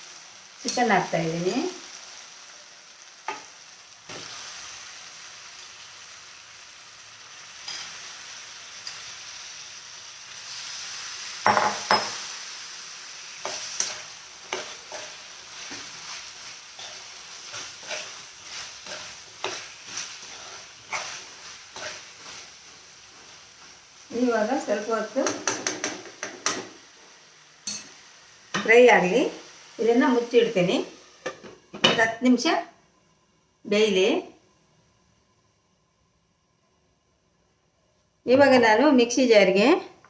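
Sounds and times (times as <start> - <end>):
chicken sizzling in hot oil: 0.0 - 32.6
spatula scraping a pan: 13.4 - 23.8.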